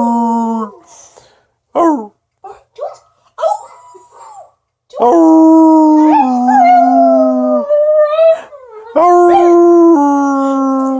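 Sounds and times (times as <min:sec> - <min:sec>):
dog howling: 0:05.1 - 0:10.9.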